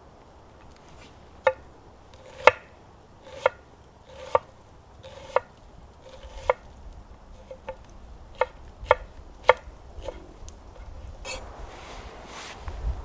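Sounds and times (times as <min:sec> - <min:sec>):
knife chopping on cutting board: 0:03.2 - 0:05.5, 0:06.1 - 0:06.6, 0:08.4 - 0:10.2.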